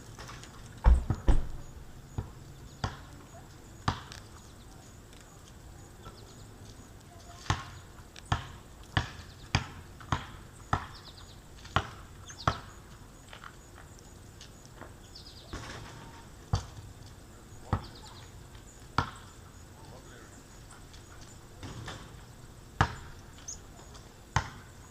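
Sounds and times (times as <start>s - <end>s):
faint high bird chirps: 23.0s - 24.0s.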